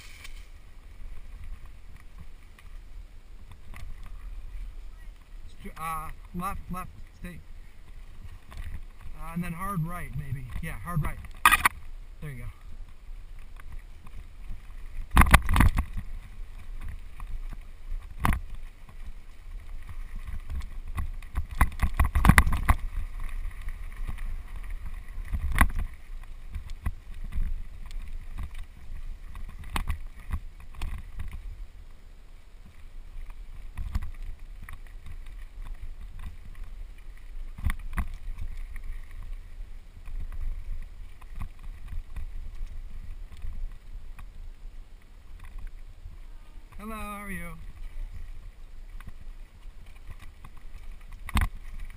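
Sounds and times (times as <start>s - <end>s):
bike rattling over bumps: 0.0s - 4.8s, 12.7s - 31.6s
wind rumble on microphone: 0.0s - 51.9s.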